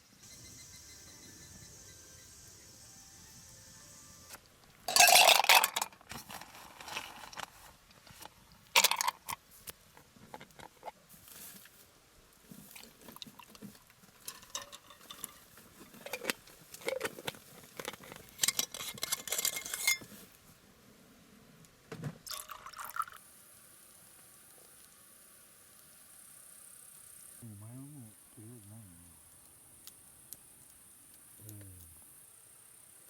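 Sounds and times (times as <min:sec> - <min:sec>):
cookware and utensils clattering: 0:04.9 - 0:07.4, 0:14.2 - 0:20.1.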